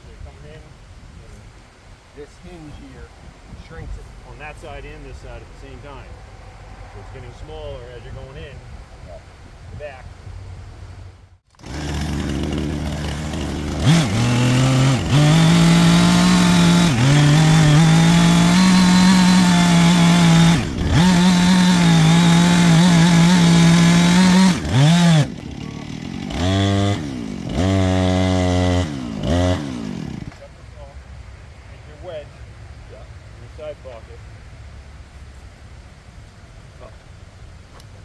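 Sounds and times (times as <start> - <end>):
chainsaw cutting wood: 11.5 - 30.4.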